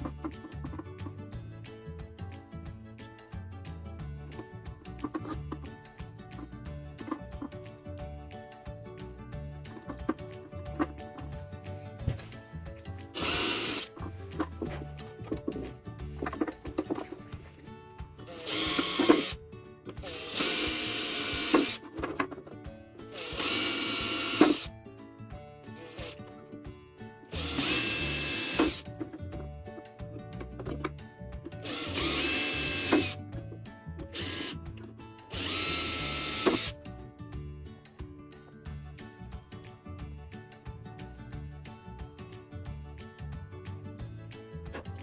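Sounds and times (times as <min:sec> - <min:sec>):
background music: 0:00.0 - 0:45.0
power drill whining: 0:13.1 - 0:17.3, 0:18.2 - 0:19.4, 0:20.0 - 0:22.4, 0:23.1 - 0:24.7, 0:25.7 - 0:26.2, 0:27.3 - 0:29.2, 0:31.6 - 0:33.2, 0:34.0 - 0:34.6, 0:35.3 - 0:36.8.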